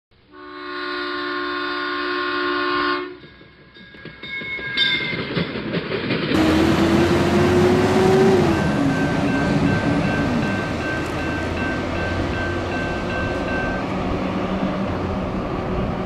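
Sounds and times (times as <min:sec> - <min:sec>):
train horn chord: 0:00.3 - 0:03.2, 0:06.4 - 0:13.8
train horn single note: 0:00.3 - 0:03.2
train rumbling and clattering: 0:03.1 - 0:16.0.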